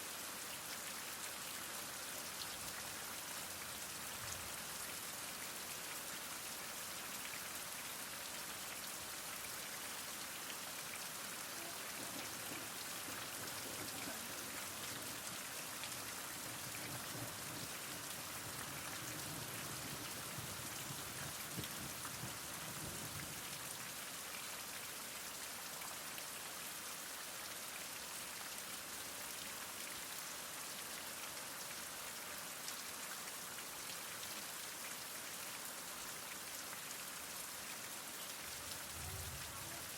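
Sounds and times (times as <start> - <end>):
heavy rain falling: 8.5 - 24.7, 35.7 - 39.9.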